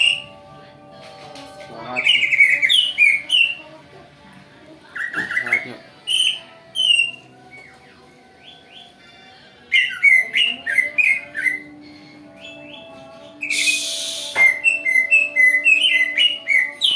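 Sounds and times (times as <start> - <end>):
harsh rasping bird call: 2.0 - 3.6, 9.7 - 11.8, 12.4 - 16.9
bird whistled chirps: 2.1 - 3.6, 5.0 - 7.7, 9.7 - 11.7, 12.5 - 16.9.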